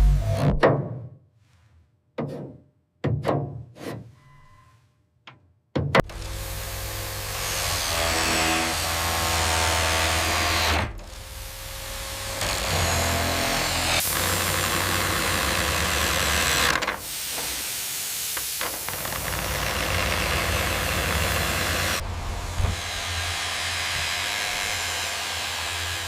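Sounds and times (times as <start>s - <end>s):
power tool hissing and humming: 6.1s - 26.0s.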